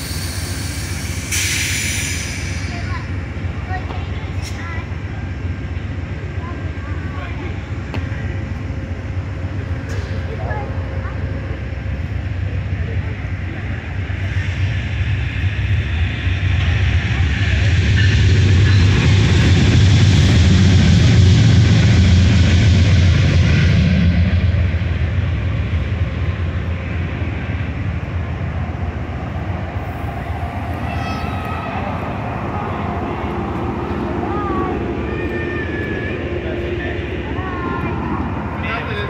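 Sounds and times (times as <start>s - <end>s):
train steady low hum: 0.0s - 39.0s
loud rushing rumble: 14.0s - 39.0s.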